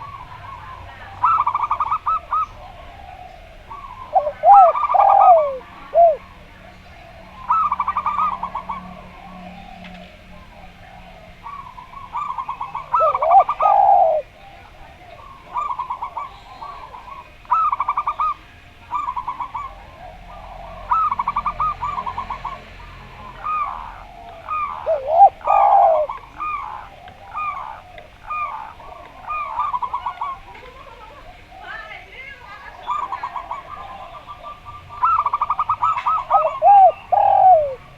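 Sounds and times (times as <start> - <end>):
dove rattling trills of coos: 0.0 - 37.9
dove swooping coos: 0.0 - 37.9
short dove coos: 4.2 - 6.2, 24.8 - 26.6, 36.1 - 37.8.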